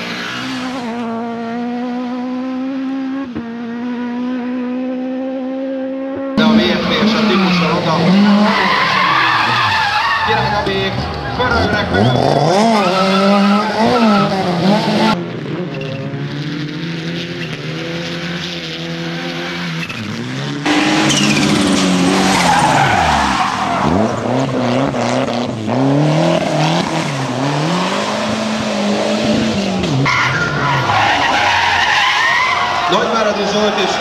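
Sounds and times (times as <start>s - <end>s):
tyres skidding: 0.0s - 1.2s, 6.4s - 34.0s
rally car engines revving: 0.0s - 34.0s.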